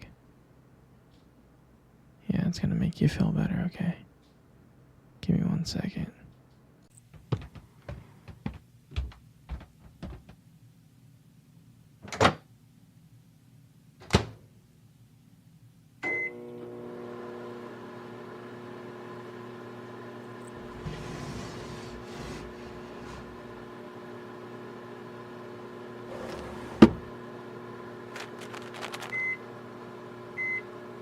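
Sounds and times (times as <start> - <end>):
microwave oven beep: 16.0 - 17.1, 29.0 - 31.0
microwave oven humming: 16.0 - 31.0.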